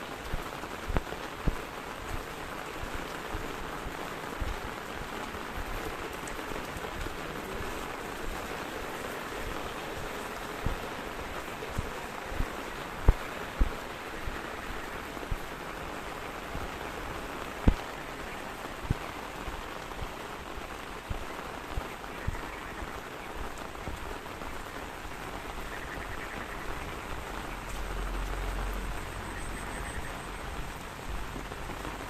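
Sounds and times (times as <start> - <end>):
heavy raindrops thudding: 0.0 - 32.0
steady rain: 0.0 - 32.0.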